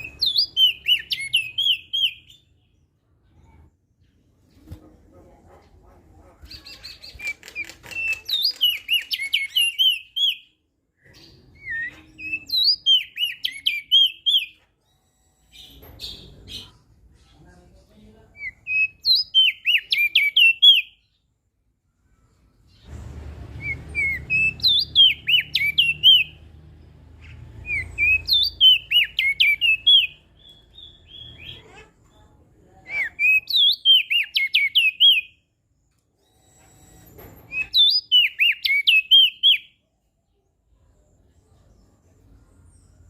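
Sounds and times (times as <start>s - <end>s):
bird singing whistled notes: 0.0s - 2.6s, 6.9s - 16.2s, 18.4s - 21.1s, 23.6s - 26.4s, 27.3s - 31.6s, 32.9s - 35.4s, 37.5s - 39.8s.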